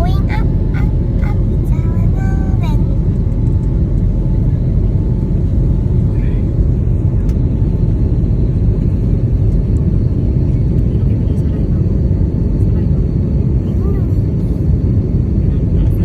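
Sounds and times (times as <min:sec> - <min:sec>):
airliner cabin engine rumble: 0:00.0 - 0:16.0.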